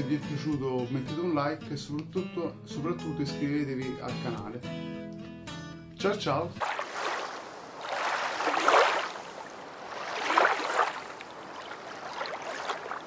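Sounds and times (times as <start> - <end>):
small waves washing on shore: 6.6 - 13.0.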